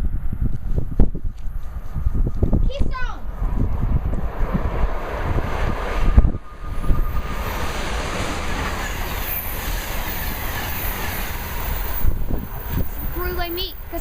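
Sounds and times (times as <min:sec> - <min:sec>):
train wheels rushing on rail: 0:00.6 - 0:14.0
faint high wheel squeal: 0:06.2 - 0:14.0.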